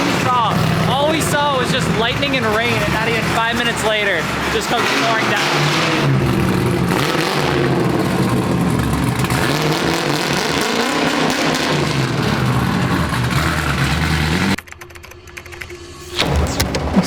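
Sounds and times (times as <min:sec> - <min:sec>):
race car engine revving: 0:00.0 - 0:17.0.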